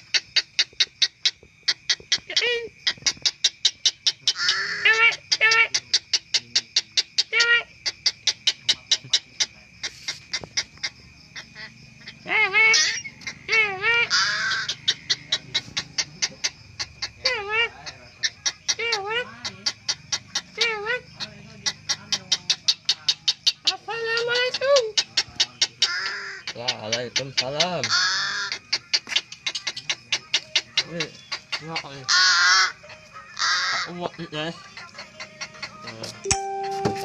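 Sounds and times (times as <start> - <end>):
bird calling: 0.0 - 37.0
faint steady high tone: 36.2 - 37.0.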